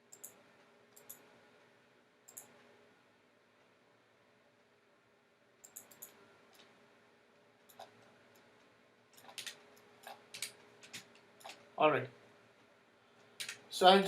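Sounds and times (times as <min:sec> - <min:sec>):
faint room hiss: 0:00.0 - 0:14.0
computer mouse clicking: 0:00.1 - 0:01.3, 0:02.3 - 0:02.7, 0:05.6 - 0:06.7, 0:07.7 - 0:11.6, 0:13.2 - 0:13.6.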